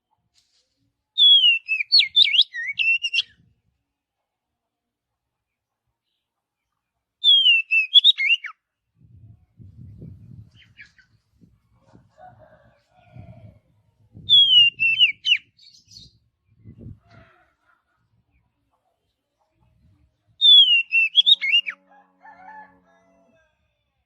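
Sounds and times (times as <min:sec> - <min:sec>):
bird whistling song: 0:01.2 - 0:03.4, 0:07.2 - 0:08.6, 0:14.2 - 0:16.2, 0:20.4 - 0:21.8.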